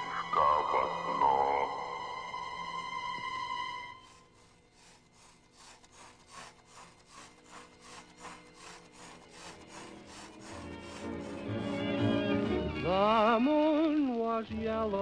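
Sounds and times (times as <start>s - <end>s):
faint rhythmic scraping: 2.4s - 12.3s.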